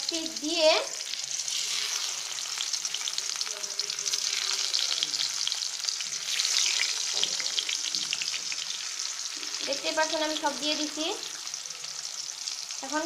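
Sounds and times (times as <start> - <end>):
pumpkin sizzling in oil: 0.0 - 13.0.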